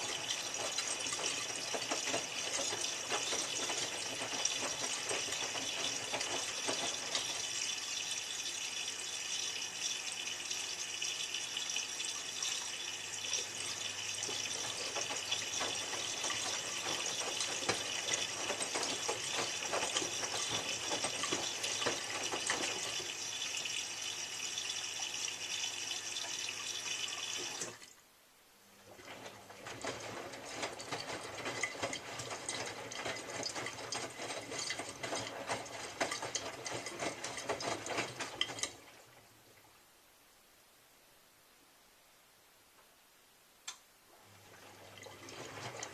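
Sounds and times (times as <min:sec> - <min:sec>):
washing machine water intake hiss: 0:00.0 - 0:28.0
washing machine mechanical sound: 0:00.0 - 0:40.2, 0:43.6 - 0:45.9.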